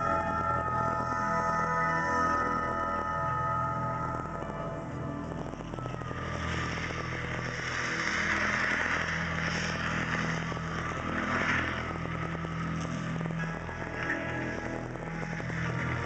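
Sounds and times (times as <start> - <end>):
low sustained drone: 0.0 - 16.0
rushing engine-like noise: 5.6 - 16.0.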